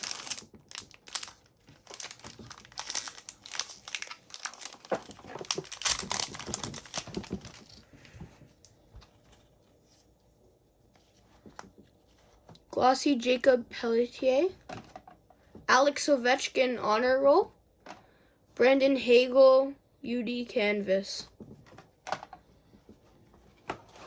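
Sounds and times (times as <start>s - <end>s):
wrapper being torn and crinkled: 0.0s - 7.8s
cards rustling: 0.0s - 9.9s.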